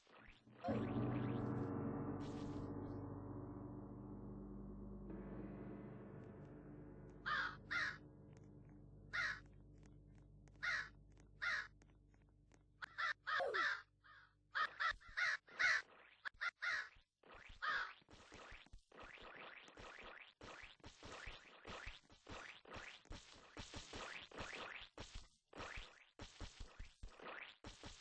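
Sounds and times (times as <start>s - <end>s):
crow cawing: 7.2s - 8.0s, 9.1s - 9.5s, 10.6s - 11.7s, 12.8s - 15.8s, 16.4s - 16.9s, 17.6s - 17.9s.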